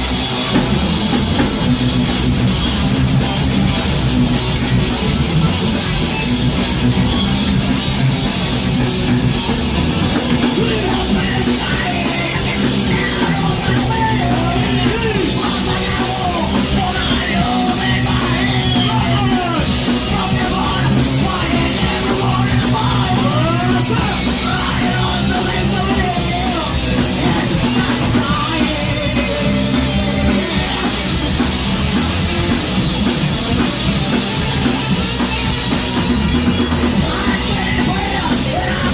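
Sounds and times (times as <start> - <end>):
bending guitar lead line: 0.0 - 38.9
metal band playing live: 0.0 - 38.9.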